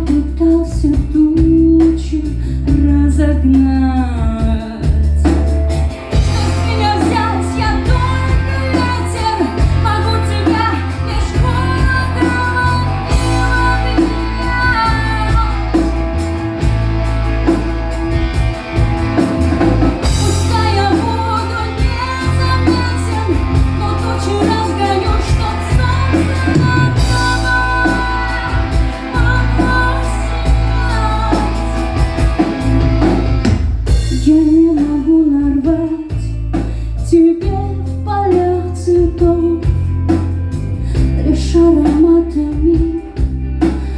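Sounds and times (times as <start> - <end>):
live rock band music: 0.0 - 43.9
bending melodic lead line: 4.6 - 36.4.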